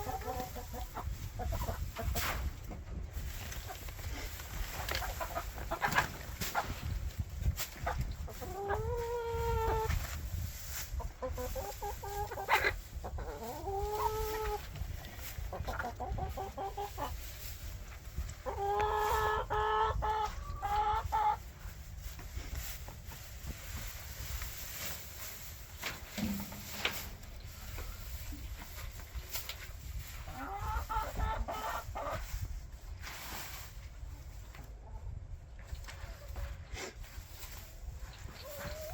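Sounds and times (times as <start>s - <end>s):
hens clucking: 0.0s - 33.2s, 33.8s - 38.9s.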